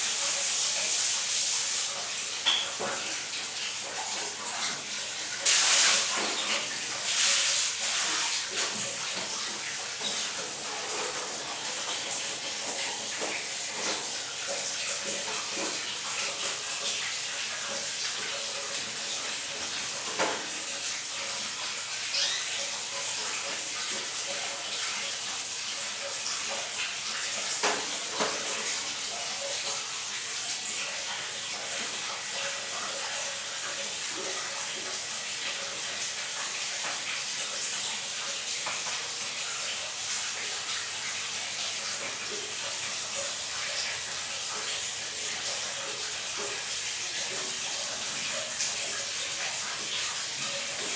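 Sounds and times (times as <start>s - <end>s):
water running in bathroom: 0.0s - 50.9s.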